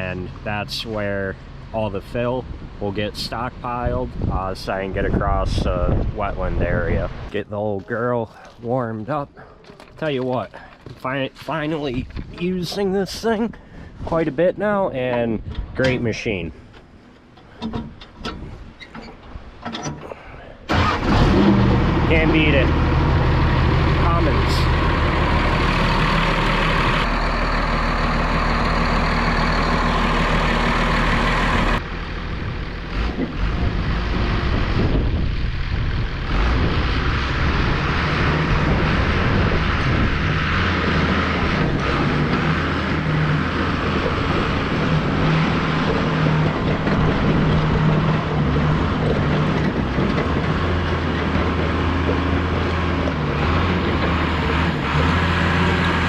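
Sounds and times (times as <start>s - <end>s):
diesel engine running: 19.4s - 56.0s.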